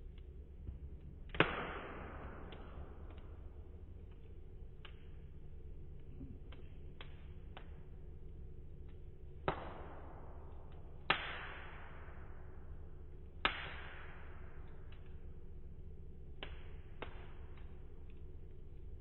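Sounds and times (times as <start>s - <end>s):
low steady rumble: 0.0s - 19.0s
wood fire crackling: 0.0s - 19.0s
sharp fire pops: 1.2s - 3.7s, 9.4s - 12.6s, 13.4s - 15.1s, 16.4s - 17.8s.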